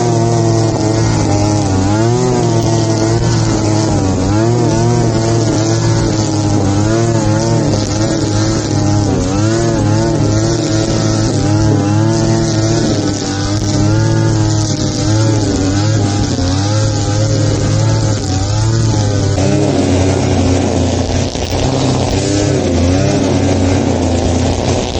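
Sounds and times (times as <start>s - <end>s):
petrol lawn mower engine cutting: 0.0s - 24.9s.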